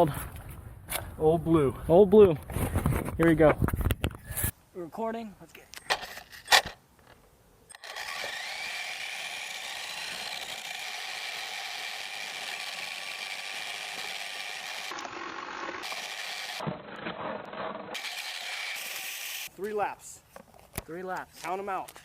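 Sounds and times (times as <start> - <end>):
rc car motor whining: 7.7 - 16.6, 17.9 - 19.5.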